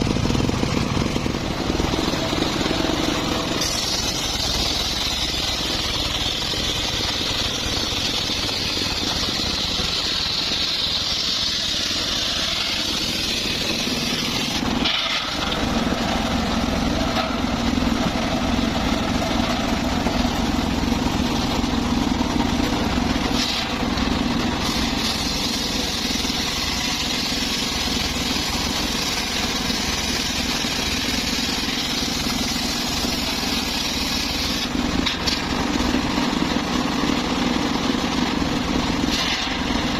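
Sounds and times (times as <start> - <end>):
circular saw cutting wood: 0.0 - 38.3.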